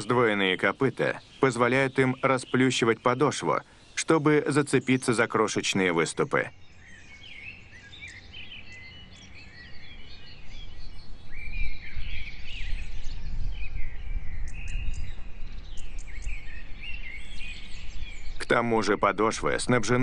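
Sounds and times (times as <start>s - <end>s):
small birds chirping and singing: 0.0s - 20.0s.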